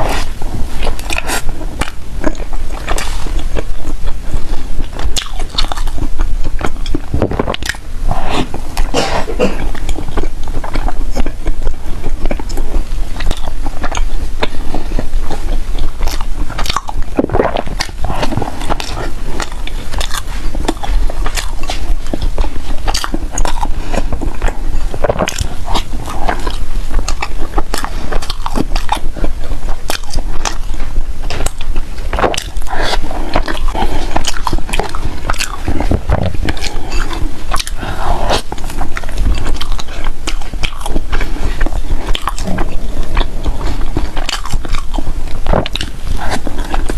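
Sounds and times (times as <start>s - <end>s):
person chewing food: 0.0s - 46.9s.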